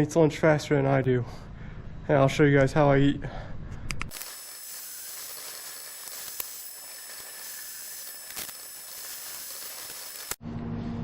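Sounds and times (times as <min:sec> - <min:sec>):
steady hiss: 0:04.1 - 0:10.4.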